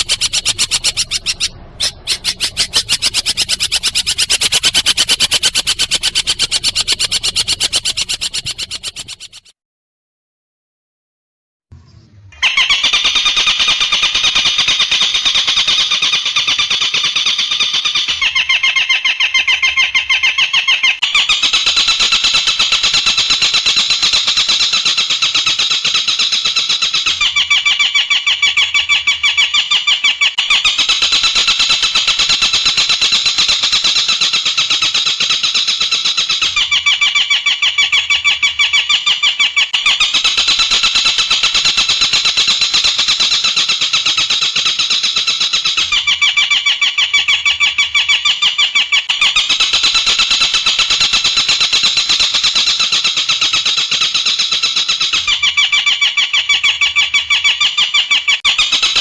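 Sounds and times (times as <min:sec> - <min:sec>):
buzzing trilled bird call: 0:00.0 - 0:09.5
lower bird trill: 0:00.0 - 0:09.5.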